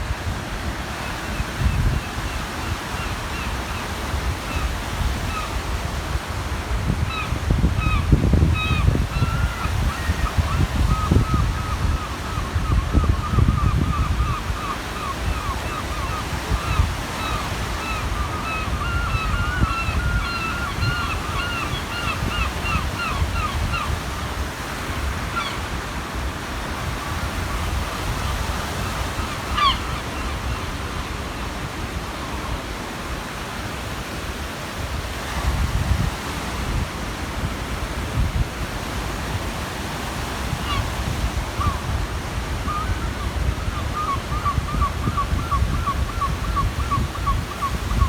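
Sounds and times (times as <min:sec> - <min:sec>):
waves washing on shore: 0:00.0 - 0:48.0
wind rumbling on microphone: 0:00.0 - 0:48.0
gull calling: 0:07.1 - 0:24.3, 0:25.2 - 0:25.7, 0:27.9 - 0:31.3.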